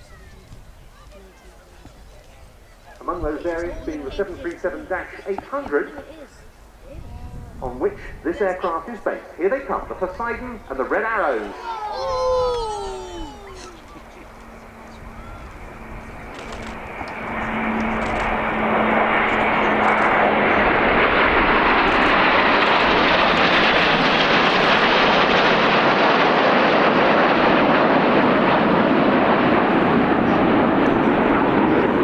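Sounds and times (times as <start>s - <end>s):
jet engines flying past: 2.9s - 32.0s.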